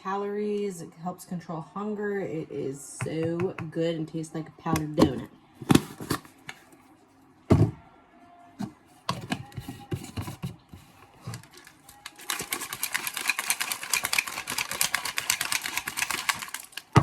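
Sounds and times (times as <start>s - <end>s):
shaker bottle rattling: 11.3s - 17.0s.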